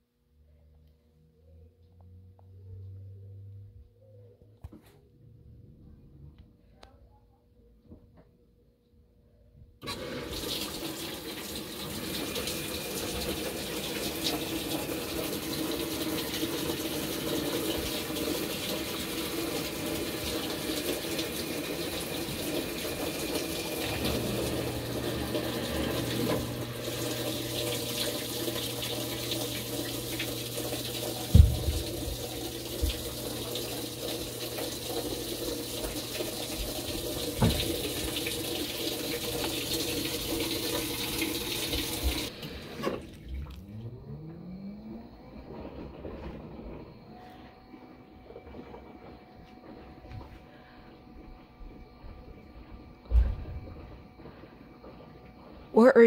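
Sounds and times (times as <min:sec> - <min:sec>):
water rushing into drum: 0:09.8 - 0:44.0
thumps: 0:31.3 - 0:33.0
low hum: 0:42.4 - 0:55.6.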